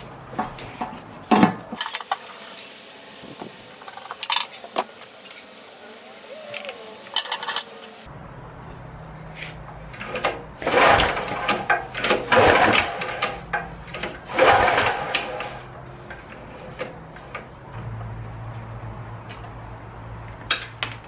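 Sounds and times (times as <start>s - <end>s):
recoil pull-starter whirring: 9.9s - 17.5s.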